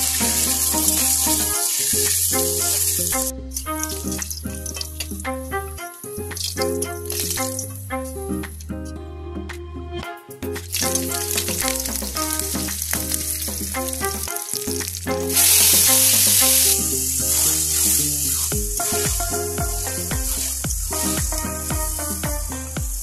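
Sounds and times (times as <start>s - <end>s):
background music: 0.0s - 23.0s
metal spatula scraping a wok: 10.7s - 22.7s
hot oil sizzling in a wok: 15.3s - 22.1s.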